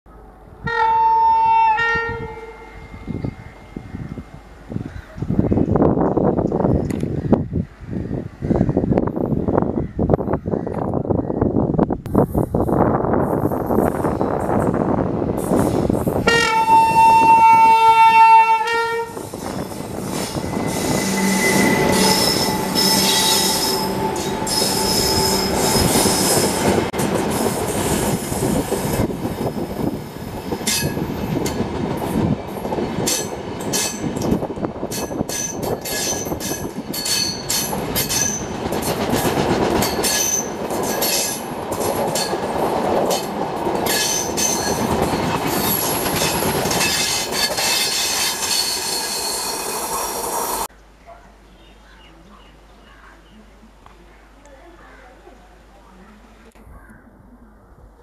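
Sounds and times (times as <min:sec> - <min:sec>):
electric locomotive whine: 0:00.1 - 0:09.6, 0:12.1 - 0:50.7
high wheel squeals: 0:19.2 - 0:26.8, 0:44.0 - 0:50.7
wheels clicking over rail joints: 0:30.5 - 0:49.8.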